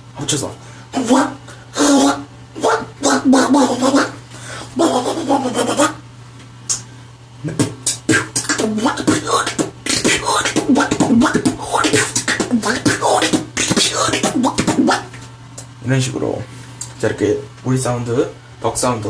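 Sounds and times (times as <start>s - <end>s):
beatboxed quacking buzz: 0.9s - 6.0s, 6.7s - 15.7s.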